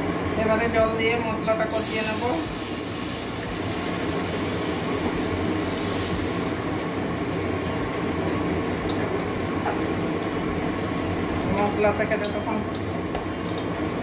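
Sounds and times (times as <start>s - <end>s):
paste sizzling and bubbling: 1.7s - 11.7s.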